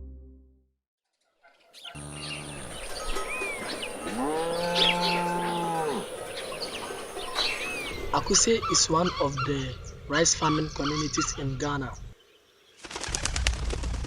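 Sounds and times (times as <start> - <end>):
birds chirping: 1.4 - 13.4
low animal call: 1.9 - 7.8.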